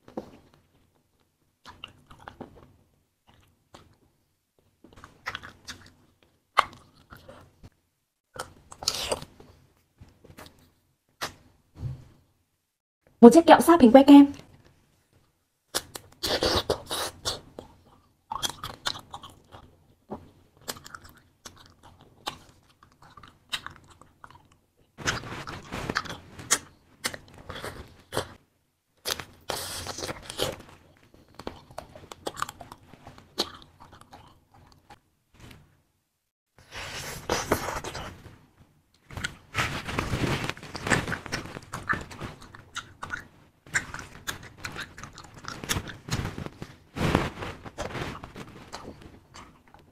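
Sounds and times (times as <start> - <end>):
chewing with crackles: 0.1 - 7.6, 15.7 - 28.4, 29.0 - 35.0, 39.0 - 49.9
biting candy: 15.7 - 19.7, 40.6 - 46.3.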